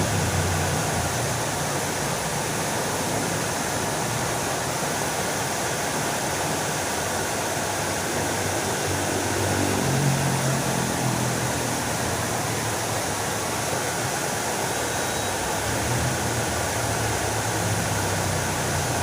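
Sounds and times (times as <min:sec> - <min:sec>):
fountain water splashing: 0:00.0 - 0:19.0.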